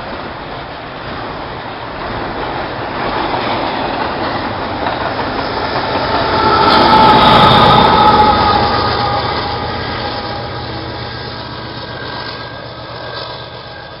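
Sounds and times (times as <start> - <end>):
freight train rolling past: 0.0 - 14.0
high squealing of wheels: 3.2 - 14.0.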